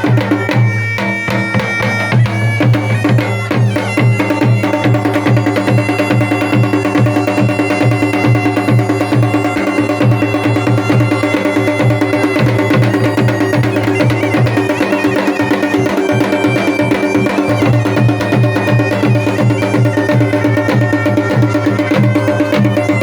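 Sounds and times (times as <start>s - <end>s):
bagpipe melody over drone: 0.0s - 23.0s
drums beating quickly: 0.0s - 23.0s.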